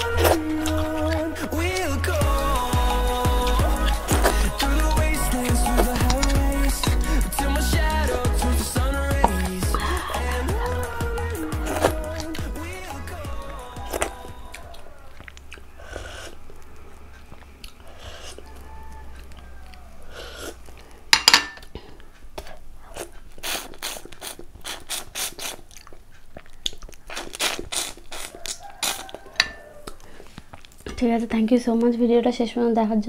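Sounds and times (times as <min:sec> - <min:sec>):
chewing: 0:00.0 - 0:21.0, 0:21.6 - 0:31.9
wet mouth clicks and smacks: 0:22.4 - 0:29.2, 0:29.8 - 0:30.8.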